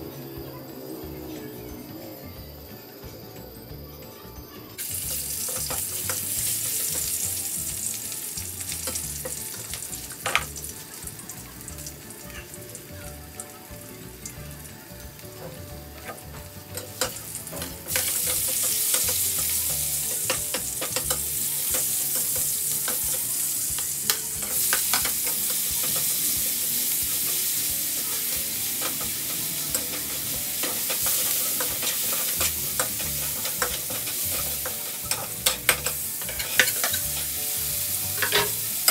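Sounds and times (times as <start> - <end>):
oil sizzling in a wok: 4.8 - 38.9
metal spatula scraping a pan: 27.1 - 37.4, 38.1 - 38.9.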